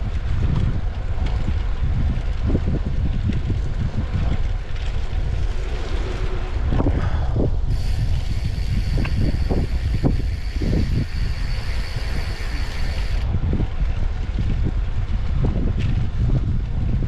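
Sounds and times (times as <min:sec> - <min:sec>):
wind buffeting microphone: 0:00.0 - 0:17.0
thin high whine: 0:07.7 - 0:13.3.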